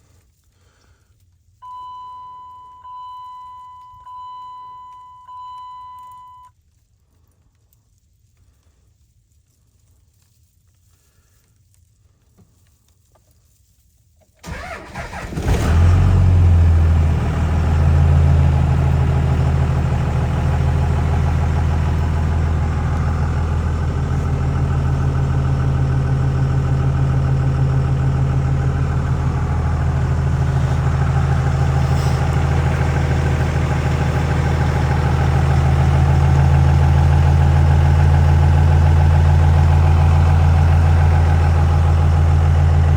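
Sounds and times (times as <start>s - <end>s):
diesel engine cranking: 14.4s - 42.9s
diesel engine idling: 14.4s - 42.9s.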